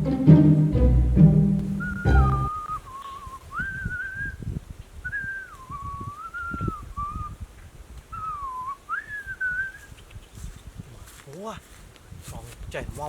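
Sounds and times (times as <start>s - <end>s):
low thuds: 0.0s - 2.5s
whistled tune: 0.0s - 4.4s, 5.1s - 7.3s, 8.2s - 9.9s.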